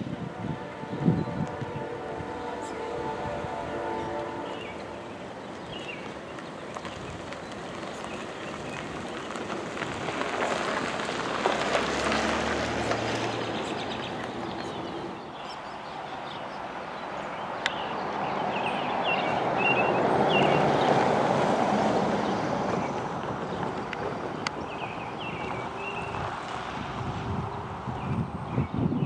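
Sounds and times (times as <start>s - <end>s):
birds chirping: 0.0s - 10.8s, 12.2s - 21.0s
freight train wheels on rails: 0.0s - 28.9s.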